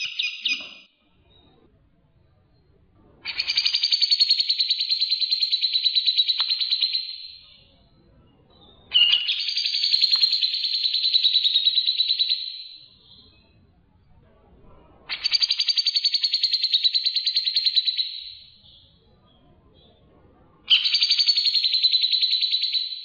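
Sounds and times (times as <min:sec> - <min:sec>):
songbird trilling: 0:00.0 - 0:00.9, 0:03.3 - 0:07.6, 0:08.9 - 0:13.2, 0:20.7 - 0:23.0.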